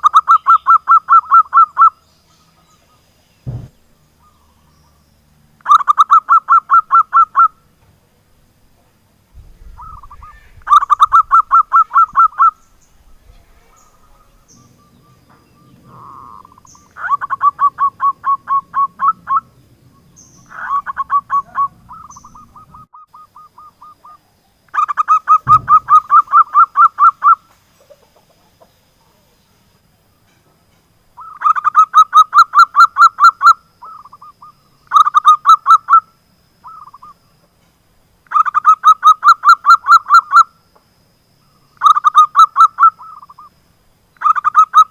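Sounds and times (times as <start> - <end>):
dove staccato cooing: 13.6 - 19.6, 20.4 - 28.7.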